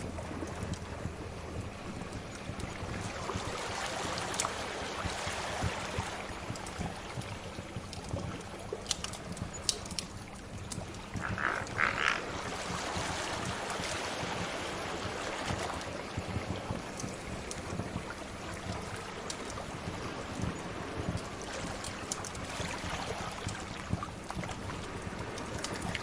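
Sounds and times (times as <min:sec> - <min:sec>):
sea waves: 0:00.0 - 0:26.0
wood fire crackling: 0:06.5 - 0:12.2.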